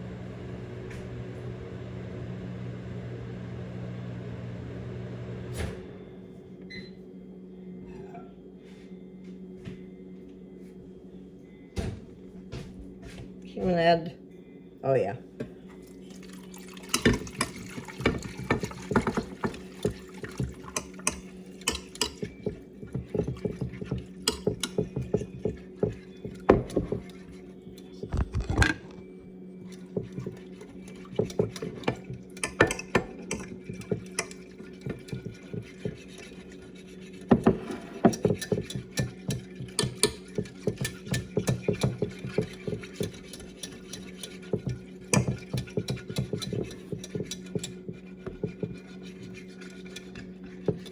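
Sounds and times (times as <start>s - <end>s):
utensil stirring dough in bowl: 16.2s - 28.1s, 29.6s - 50.9s.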